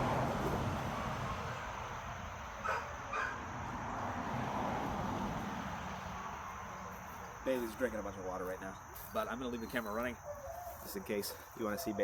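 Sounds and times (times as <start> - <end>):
dog barking: 2.6 - 3.4.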